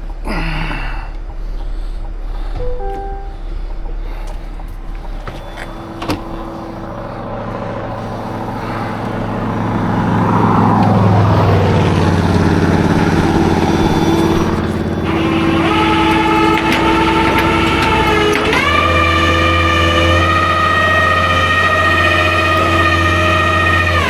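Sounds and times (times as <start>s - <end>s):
truck engine running: 0.0s - 24.0s
falling sweep of noise: 6.9s - 15.0s.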